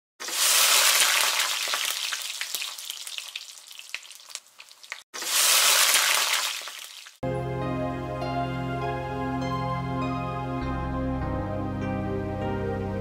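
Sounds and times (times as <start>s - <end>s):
food sizzling in hot oil: 0.2s - 7.2s.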